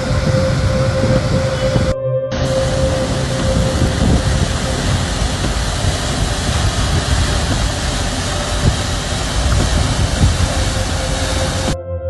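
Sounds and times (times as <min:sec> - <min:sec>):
water rushing down falls: 0:02.4 - 0:11.8.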